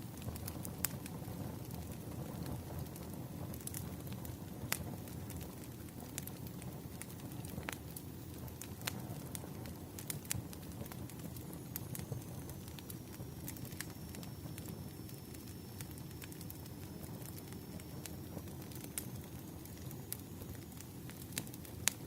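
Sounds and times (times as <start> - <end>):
wood fire crackling: 0.0 - 22.0
faint high whine: 9.0 - 22.0.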